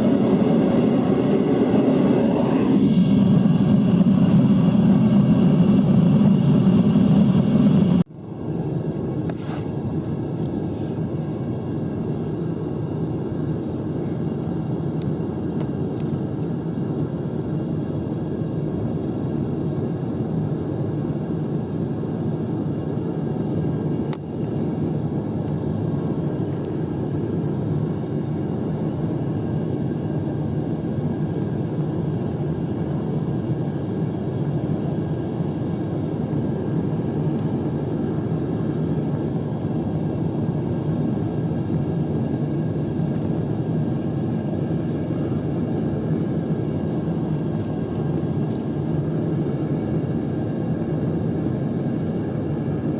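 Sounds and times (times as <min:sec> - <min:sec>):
gas furnace rumbling: 0:00.0 - 0:08.1.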